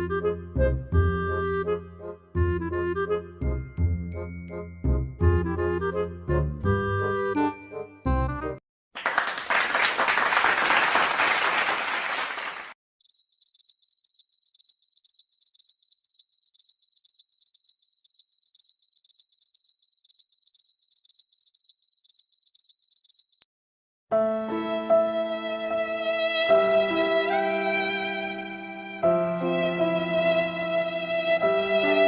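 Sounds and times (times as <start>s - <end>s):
applause sound effect: 8.9s - 12.8s
cricket chirping sound effect: 13.0s - 23.5s
sad violin music: 24.1s - 32.0s.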